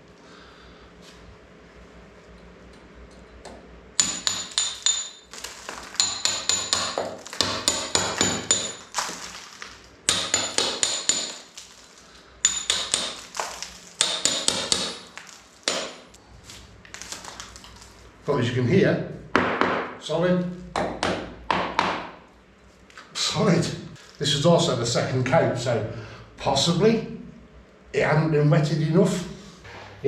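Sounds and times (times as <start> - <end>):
hammer striking metal chisel: 4.0 - 9.3, 10.1 - 11.6, 12.4 - 16.2.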